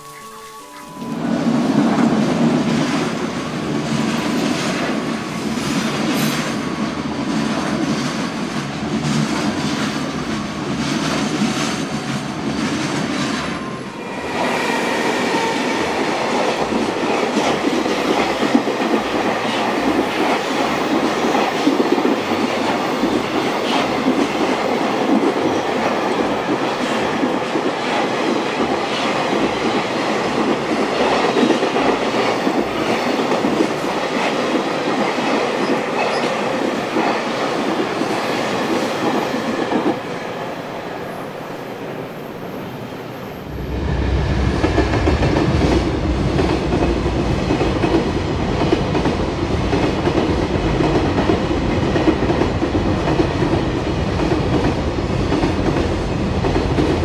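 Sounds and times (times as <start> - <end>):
freight train passing: 0.0 - 57.0.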